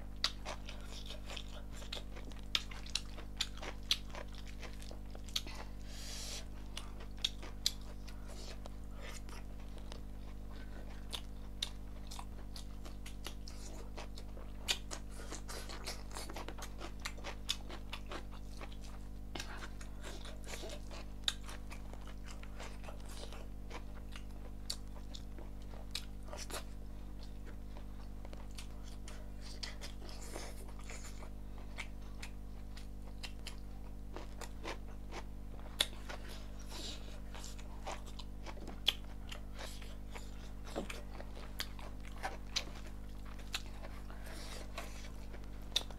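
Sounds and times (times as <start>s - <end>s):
steady low hum: 0.0s - 45.9s
person chewing food: 0.1s - 45.9s.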